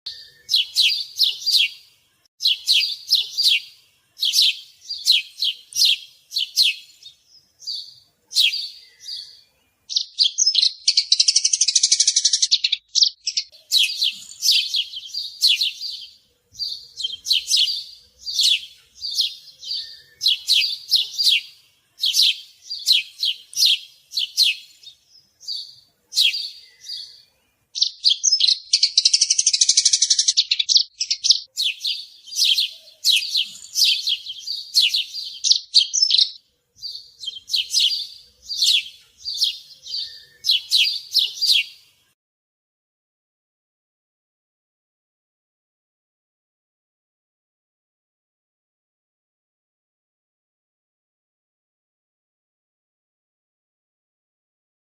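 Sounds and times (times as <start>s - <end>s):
sparrow chirping: 0.1s - 42.0s.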